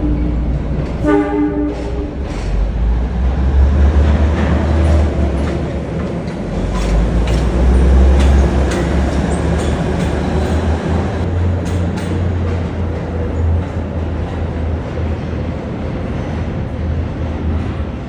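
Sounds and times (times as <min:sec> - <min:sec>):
locomotive engine hum: 0:00.0 - 0:18.0
wheels clicking over rail joints: 0:04.1 - 0:14.7.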